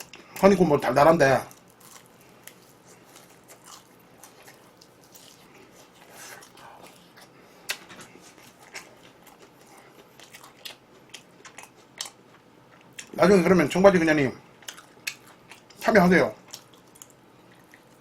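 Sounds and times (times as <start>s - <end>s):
chewing crunchy food: 1.2s - 13.2s, 14.5s - 18.0s
sharp chewing clicks: 8.5s - 13.2s.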